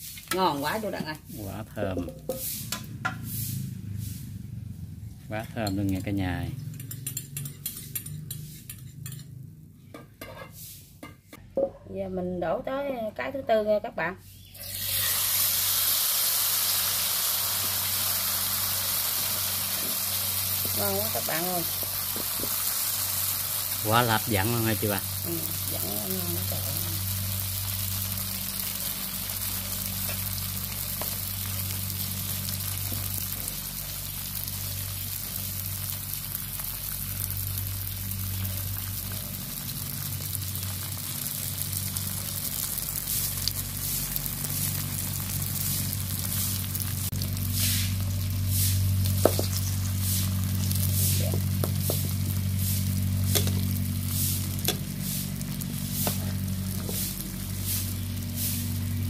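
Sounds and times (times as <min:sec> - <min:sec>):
pancake sizzling in hot oil: 0:00.0 - 0:01.5, 0:05.4 - 0:09.4, 0:14.4 - 0:59.0
spatula scraping in pan: 0:02.0 - 0:04.5, 0:06.7 - 0:09.4, 0:10.0 - 0:11.4, 0:42.7 - 0:59.0.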